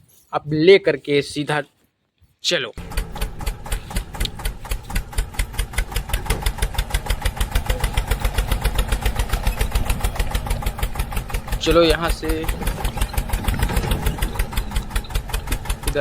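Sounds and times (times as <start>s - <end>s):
small engine chugging: 2.8s - 16.0s.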